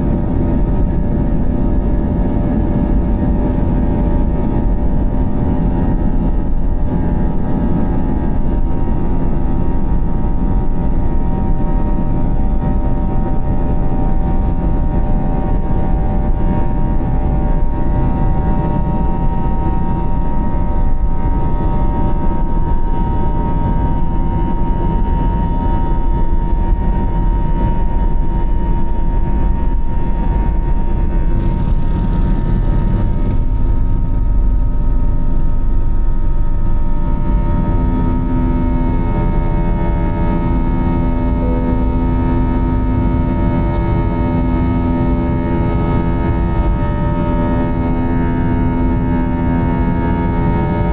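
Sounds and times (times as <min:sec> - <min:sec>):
jet engine roar in cabin: 0:00.0 - 0:50.9
buzzsaw tones from fan: 0:31.3 - 0:50.9.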